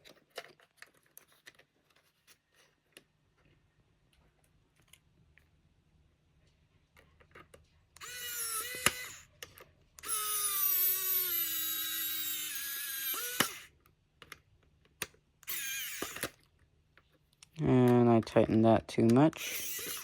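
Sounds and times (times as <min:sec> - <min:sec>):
power driver whining: 0:08.0 - 0:09.3, 0:10.0 - 0:13.7, 0:15.4 - 0:16.4, 0:19.3 - 0:20.0.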